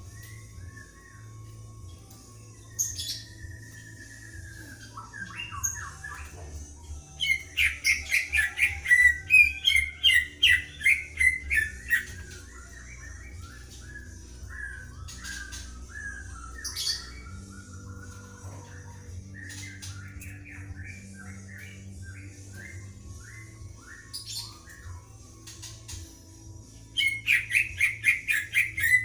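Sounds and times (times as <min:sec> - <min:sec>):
birds singing back and forth: 0:00.0 - 0:29.0
soft bird chirps and trills: 0:00.0 - 0:29.0
rapid sharp whistled bird notes: 0:07.2 - 0:18.3.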